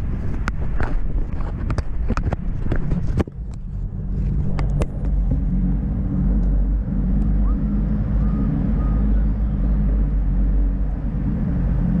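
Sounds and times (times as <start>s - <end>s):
wind and road riding noise: 0.0s - 12.0s
sharp clicks and knocks: 0.4s - 5.5s.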